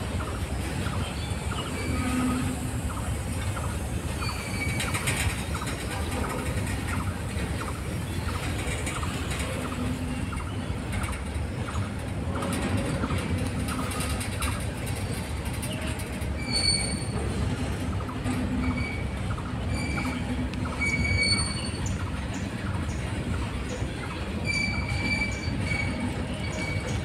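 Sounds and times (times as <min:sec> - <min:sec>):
train wheels rumbling on rail: 0:00.0 - 0:27.0
high-pitched wheel squeals: 0:01.6 - 0:02.7, 0:04.2 - 0:05.2, 0:15.8 - 0:17.4, 0:18.6 - 0:21.9, 0:24.4 - 0:27.0.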